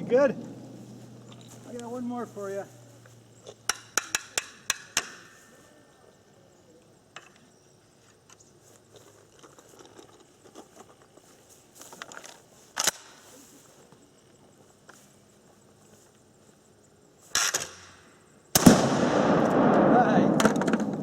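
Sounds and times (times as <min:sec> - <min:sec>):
shotgun shot: 0:18.6 - 0:21.0.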